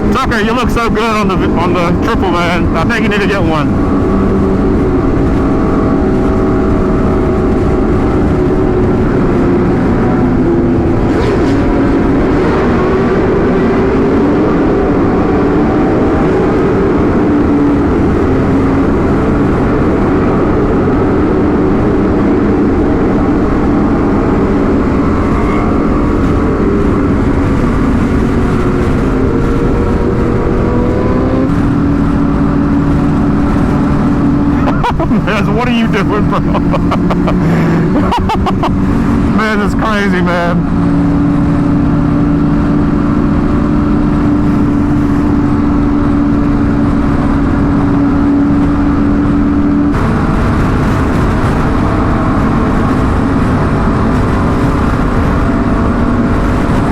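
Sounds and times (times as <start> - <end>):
wind and road rush: 0.0 - 56.9.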